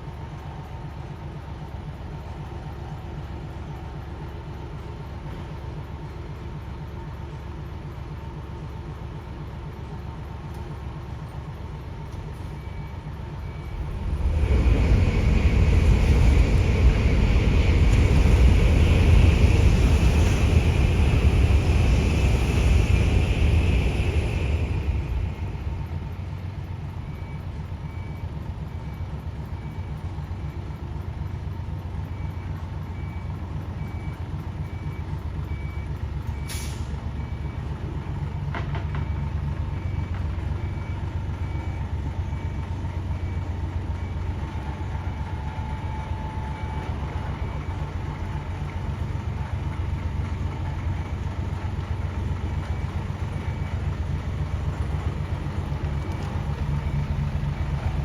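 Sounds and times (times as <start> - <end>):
diesel truck engine idling: 0.0 - 58.0
faint short beeps: 12.1 - 14.3, 32.1 - 37.7.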